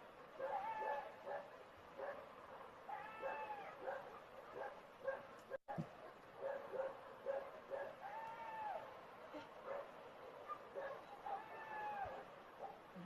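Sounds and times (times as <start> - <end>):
animal wailing calls: 0.4 - 1.1, 2.9 - 4.0, 8.0 - 9.4, 11.1 - 12.3
animal yelping: 0.4 - 1.4, 2.9 - 4.0.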